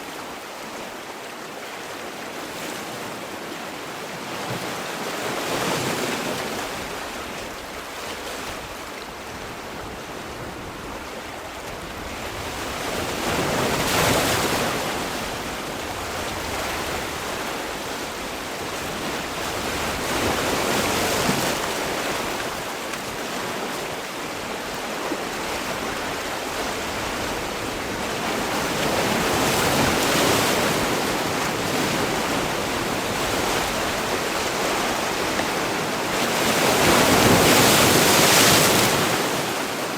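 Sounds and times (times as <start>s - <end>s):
sea waves breaking on shore: 0.0s - 39.9s
wash of surf: 25.7s - 39.9s.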